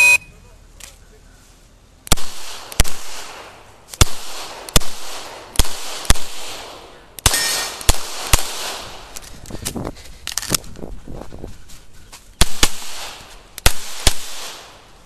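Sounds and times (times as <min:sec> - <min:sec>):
pistol shots cracking: 0:02.1 - 0:09.2, 0:12.4 - 0:14.8.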